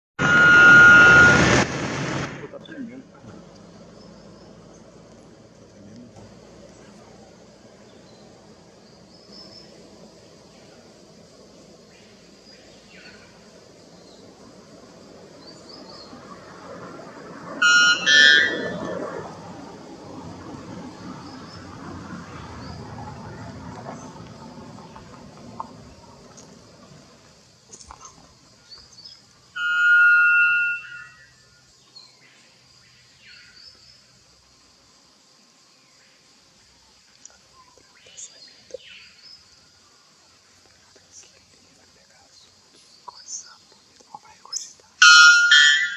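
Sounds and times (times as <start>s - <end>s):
faint insect sounds: 2.4s - 45.9s
bird two-note call: 17.6s - 18.8s, 29.6s - 31.2s, 45.0s - 45.9s
faint bird chirps: 35.8s - 45.9s.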